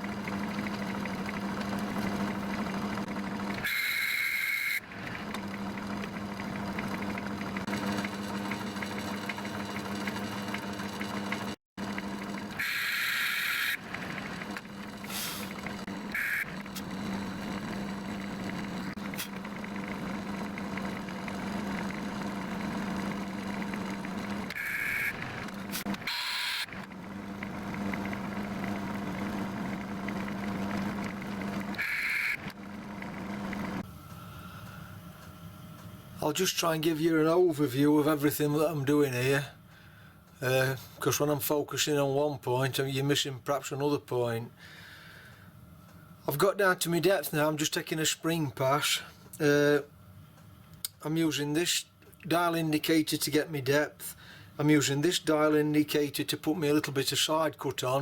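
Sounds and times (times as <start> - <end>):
lathe motor humming: 0.0 - 41.3.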